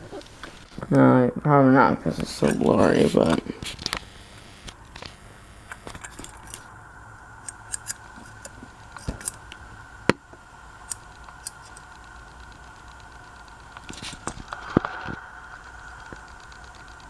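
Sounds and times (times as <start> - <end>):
faint high hum: 0.0 - 17.0
small parts clicking: 2.5 - 6.7, 7.4 - 17.0.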